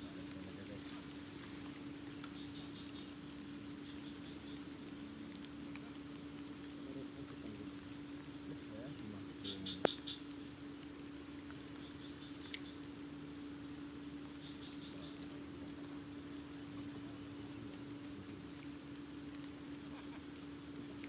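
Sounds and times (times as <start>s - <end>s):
night insects trilling: 0.0s - 21.0s
steady low hum: 0.0s - 21.0s
background hiss: 6.8s - 21.0s.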